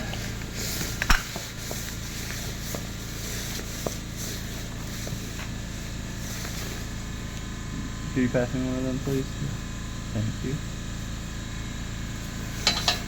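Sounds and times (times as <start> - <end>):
steady background hum: 0.0 - 13.0
bolts and nuts clinking in metal tray: 12.6 - 13.0.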